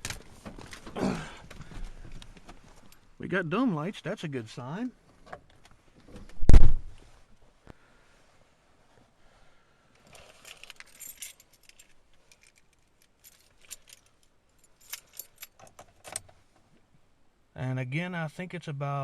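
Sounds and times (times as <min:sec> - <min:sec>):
keys jangling on a key ring: 0:10.1 - 0:16.2.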